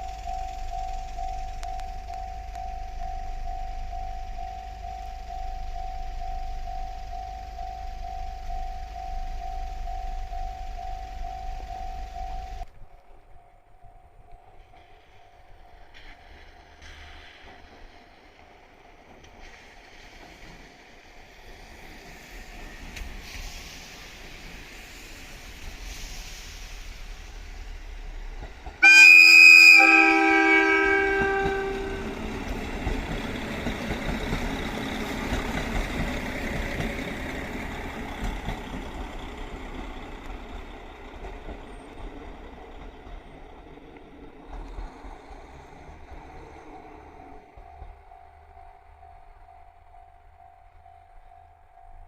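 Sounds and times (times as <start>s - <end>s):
diesel train engines: 0.0s - 52.0s
train wheel noise: 0.0s - 52.0s
train horn chord: 28.8s - 32.9s.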